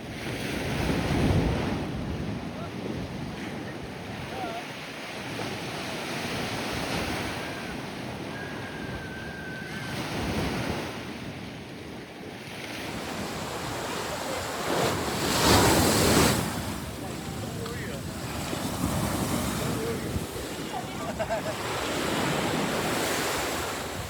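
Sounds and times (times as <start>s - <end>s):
wind buffeting microphone: 0.1s - 4.6s, 5.3s - 24.0s
ocean surf washing onto beach: 12.3s - 24.0s.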